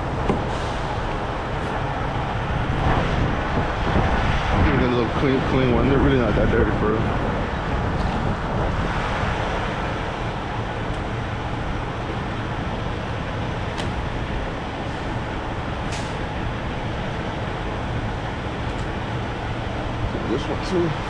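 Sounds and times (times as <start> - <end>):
passing traffic: 0.0 - 21.0
trucks idling: 0.0 - 21.0.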